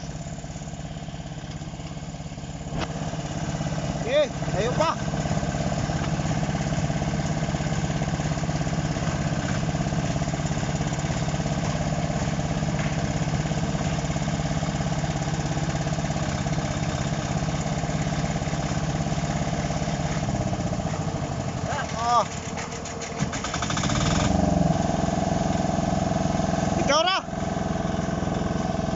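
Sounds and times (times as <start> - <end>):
diesel engine low drone: 0.0 - 28.9.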